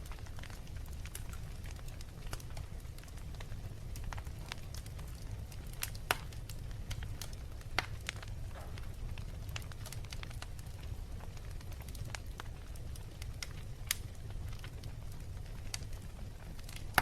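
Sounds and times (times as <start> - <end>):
burning logs popping: 0.0 - 17.0
low fire rumble: 0.0 - 17.0.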